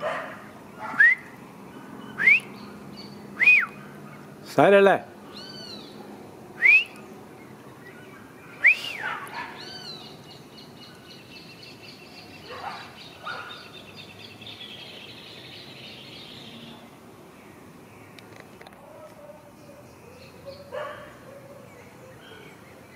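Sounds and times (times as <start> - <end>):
bird chirps: 0.8 - 4.3, 5.3 - 6.0, 6.6 - 18.3.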